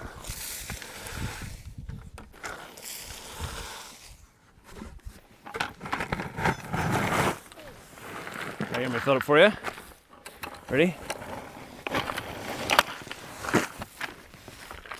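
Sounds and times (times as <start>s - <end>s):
wood chips scraping and rustling: 0.0s - 14.9s.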